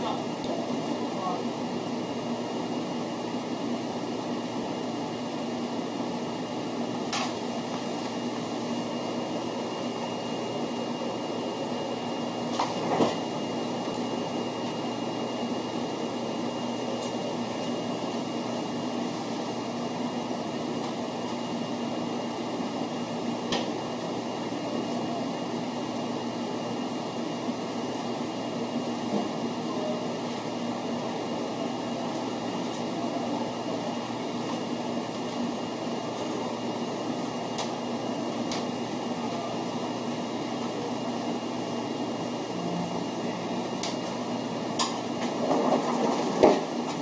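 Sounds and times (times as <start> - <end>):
train cabin running noise: 9.6 - 14.8, 42.5 - 47.0.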